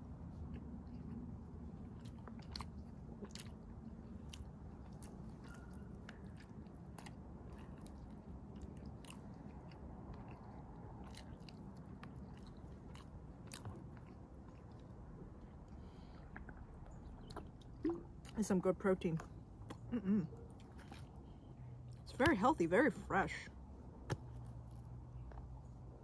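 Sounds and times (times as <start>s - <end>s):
chewing and biting chicken: 0.0s - 18.4s, 19.2s - 22.0s
wet mouth clicks: 15.7s - 18.4s.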